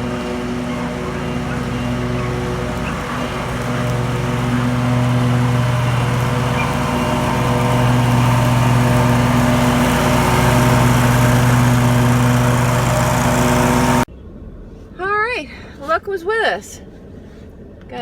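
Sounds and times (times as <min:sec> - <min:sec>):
lawn mower engine running: 0:00.0 - 0:14.1.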